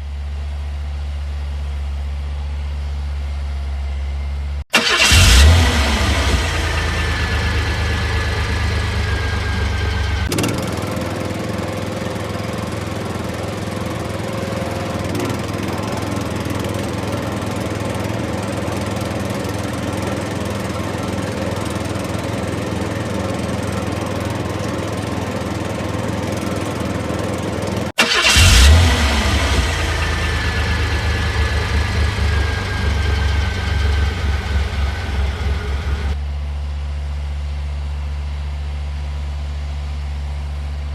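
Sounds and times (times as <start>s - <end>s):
vehicle engine running: 0.0s - 40.9s
falling whine: 4.8s - 11.3s, 28.2s - 36.2s.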